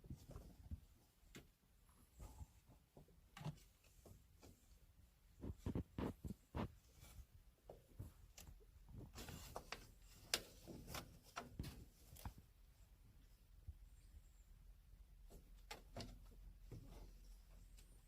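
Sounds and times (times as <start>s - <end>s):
kittens playing taps and scuffs: 0.0s - 12.7s.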